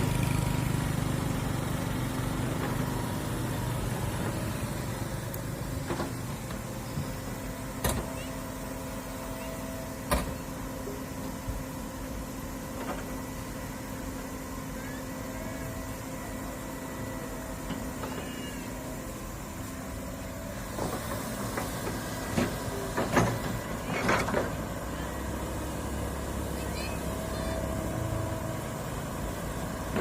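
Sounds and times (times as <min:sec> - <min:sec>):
excavator engine whining: 0:00.0 - 0:30.0
faint high squeals: 0:17.9 - 0:19.0
irregular clunks and thuds: 0:20.7 - 0:24.6.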